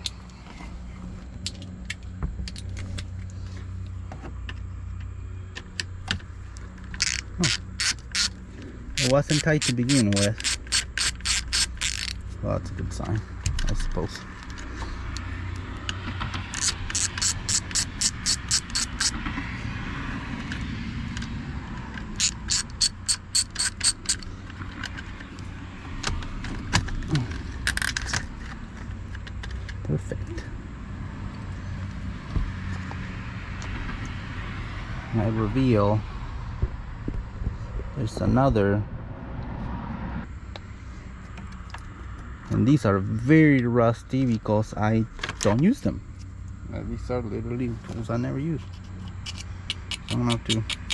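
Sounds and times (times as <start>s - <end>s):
ratchet wrench clicking: 6.9s - 8.4s, 9.0s - 12.2s, 14.4s - 19.2s, 22.0s - 25.0s, 49.0s - 50.9s
rasping strokes: 7.0s - 12.3s, 16.5s - 19.2s, 22.1s - 24.3s.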